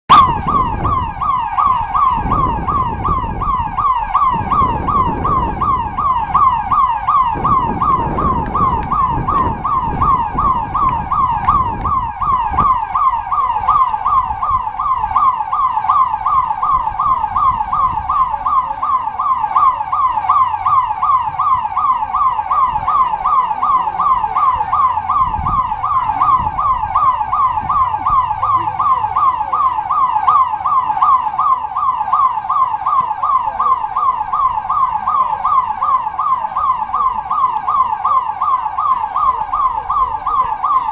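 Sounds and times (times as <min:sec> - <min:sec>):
electronic alarm siren whooping: 0:00.1 - 0:40.9
low microphone rumble: 0:00.2 - 0:15.2.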